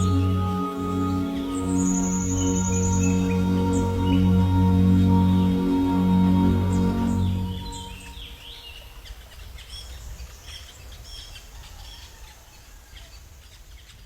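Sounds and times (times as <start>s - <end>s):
music: 0.0s - 8.4s
birds chirping and calling: 0.0s - 9.9s.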